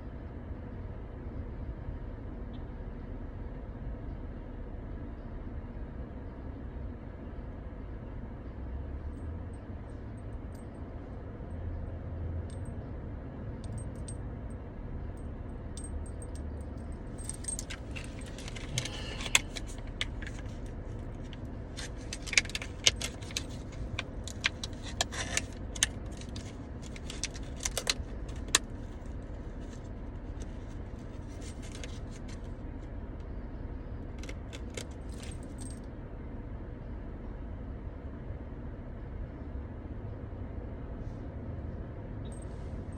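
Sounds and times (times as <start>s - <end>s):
small metal objects clinking: 15.8s - 20.6s, 21.2s - 28.6s, 30.4s - 32.4s.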